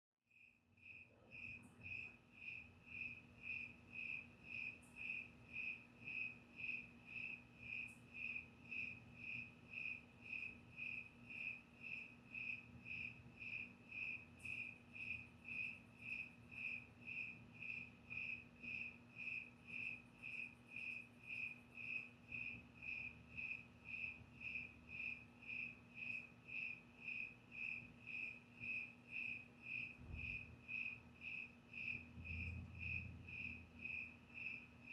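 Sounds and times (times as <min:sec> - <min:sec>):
cricket chirping: 0:00.3 - 0:34.9
faint low hum: 0:00.4 - 0:34.9.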